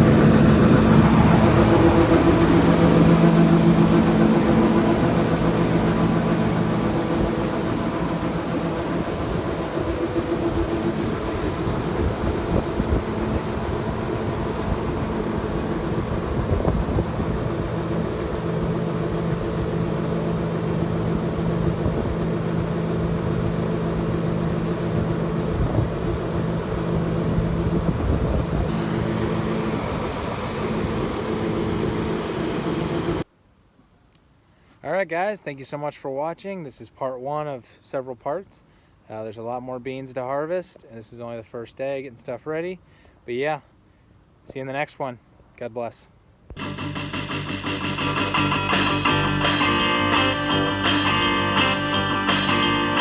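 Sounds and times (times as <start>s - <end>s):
combine harvester engine drone: 0.0s - 33.3s, 46.5s - 53.0s.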